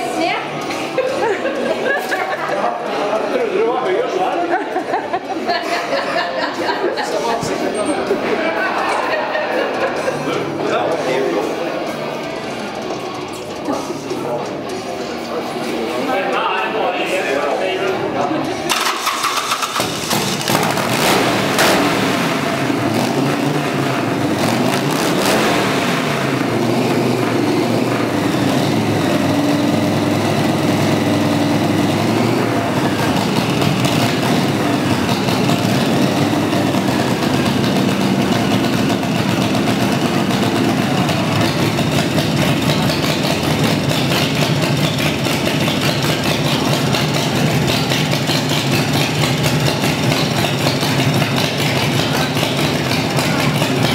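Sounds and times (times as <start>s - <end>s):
motorcycle engine revving and idling: 18.7s - 53.9s.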